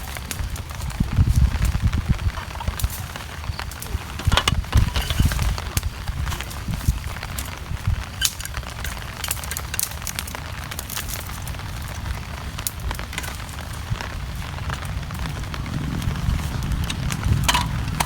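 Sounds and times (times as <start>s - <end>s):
campfire crackling: 0.0s - 18.0s
steady rain: 0.0s - 18.0s
low rumble: 13.4s - 18.0s.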